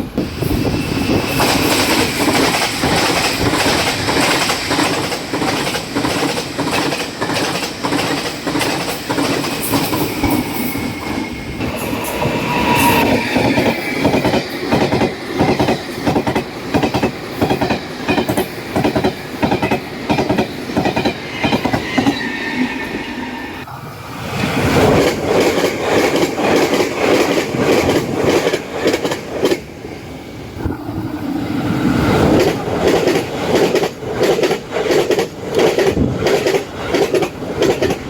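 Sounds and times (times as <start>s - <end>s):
train wheels clacking: 0.2s - 22.3s, 24.7s - 29.7s, 32.2s - 38.0s.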